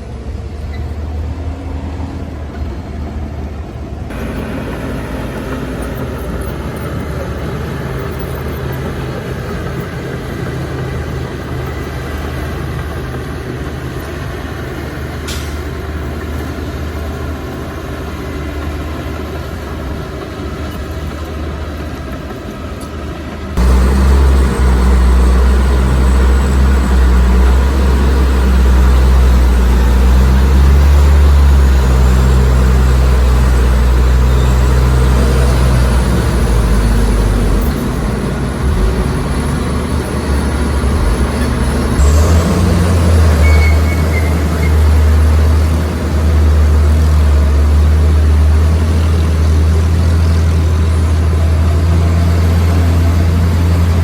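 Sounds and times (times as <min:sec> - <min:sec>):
heavy diesel machinery running: 0:00.0 - 0:54.0.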